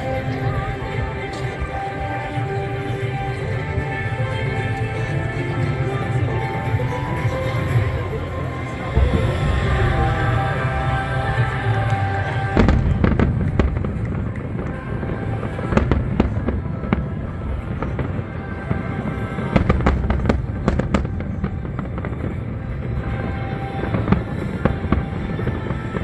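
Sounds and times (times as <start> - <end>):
music playing: 0.0 - 26.0
fireworks bangs and crackles: 6.6 - 26.0.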